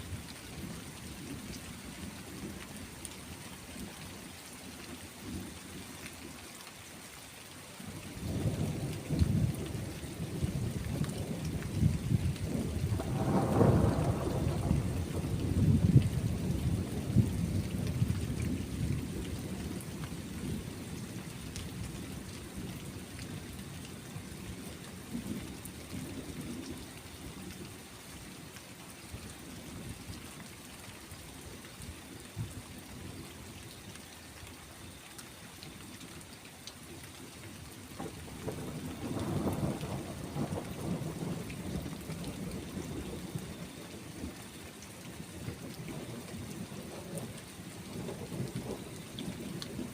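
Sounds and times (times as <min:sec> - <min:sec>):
steady rain: 0:00.0 - 0:49.9
rolling thunder: 0:08.3 - 0:19.8, 0:38.0 - 0:43.4.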